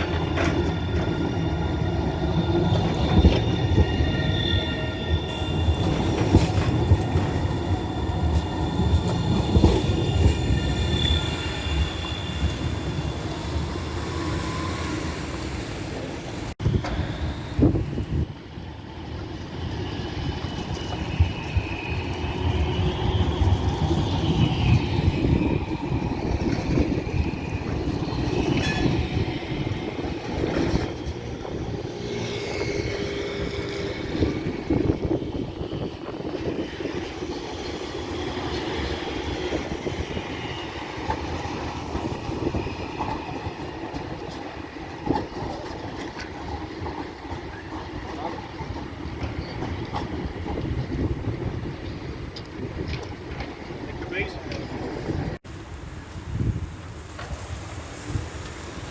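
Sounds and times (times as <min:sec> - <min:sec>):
clacks over rails: 0:00.0 - 0:02.1
high-pitched wheel squeal: 0:00.0 - 0:15.7
tram rumbling on track: 0:00.0 - 0:58.9.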